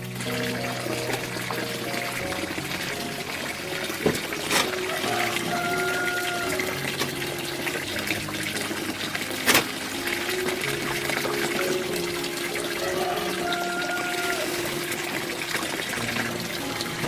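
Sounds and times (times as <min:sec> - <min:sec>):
soft background music: 0:00.0 - 0:17.0
water running: 0:00.0 - 0:17.0.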